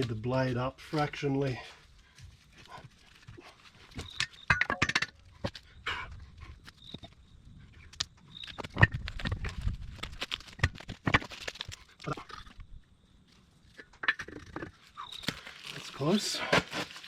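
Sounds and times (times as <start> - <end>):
metal knocks and clunks: 4.0 - 5.6.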